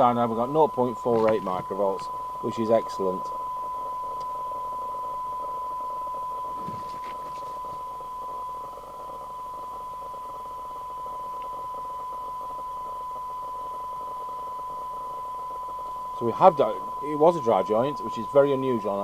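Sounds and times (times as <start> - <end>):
faint radio hiss: 0.0 - 19.0
steady test tone from radio: 0.0 - 19.0
faint clicks: 11.3 - 11.6.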